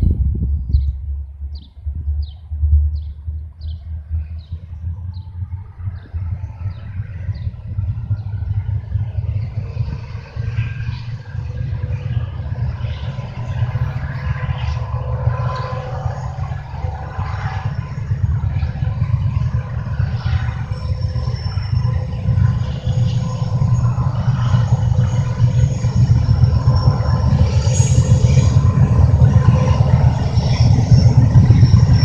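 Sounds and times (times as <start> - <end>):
train wheels rumbling on rail: 0.0 - 32.0
train clatter: 5.9 - 32.0
faint high metallic squeals: 9.6 - 32.0.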